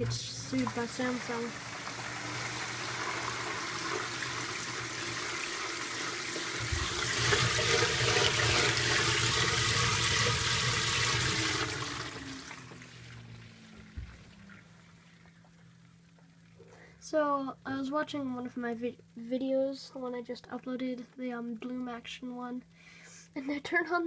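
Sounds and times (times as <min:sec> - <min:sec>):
water rushing in washing machine: 0:00.0 - 0:15.6.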